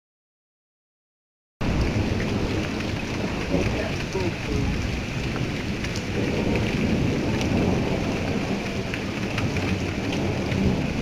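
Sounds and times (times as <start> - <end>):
steady rain falling: 1.6 - 11.0.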